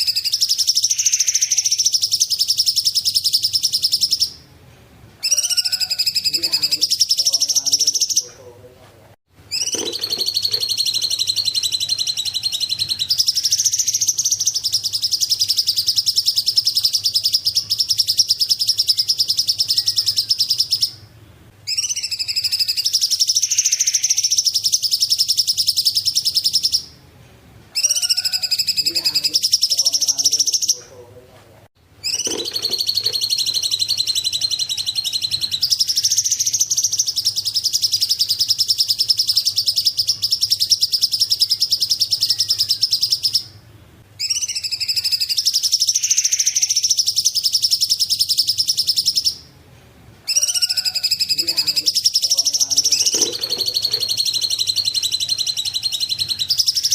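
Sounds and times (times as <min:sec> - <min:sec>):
songbird trilling: 0:00.0 - 0:04.4, 0:05.2 - 0:08.4, 0:09.5 - 0:21.0, 0:21.7 - 0:27.0, 0:27.8 - 0:30.9, 0:32.0 - 0:43.6, 0:44.2 - 0:49.5, 0:50.3 - 0:56.9
faint low hum: 0:47.2 - 0:56.9.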